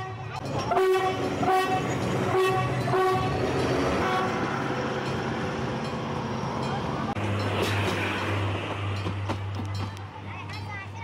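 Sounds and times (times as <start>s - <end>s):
train horn toot: 0.0s - 3.4s, 4.0s - 4.6s
train cars rolling by: 0.0s - 11.0s.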